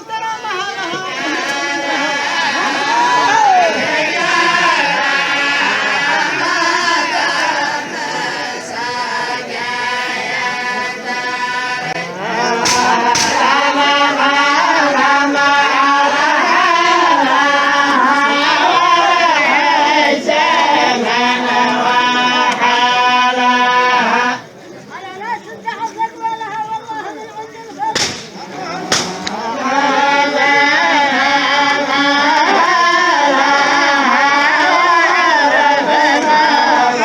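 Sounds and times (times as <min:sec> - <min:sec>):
group of voices chanting: 0:00.0 - 0:37.0
sharp cracks: 0:12.6 - 0:13.7, 0:28.0 - 0:29.4.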